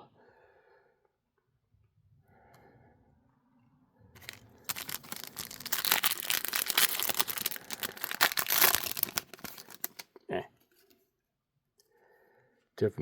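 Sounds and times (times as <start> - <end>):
plastic wrapper tearing and crinkling: 4.2 - 10.1.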